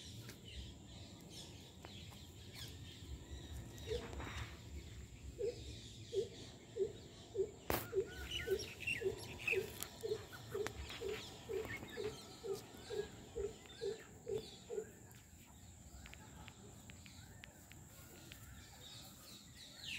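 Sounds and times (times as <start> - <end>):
small birds chirping faintly: 0.0 - 19.9
bird hooting: 5.3 - 14.9.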